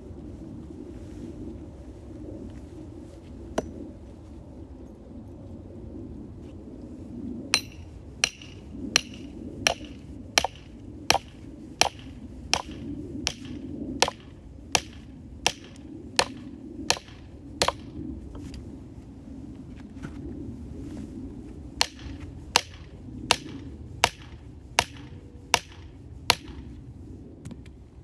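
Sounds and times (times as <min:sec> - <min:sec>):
tool striking firewood: 0:03.6 - 0:03.8, 0:07.6 - 0:18.0, 0:21.8 - 0:26.7.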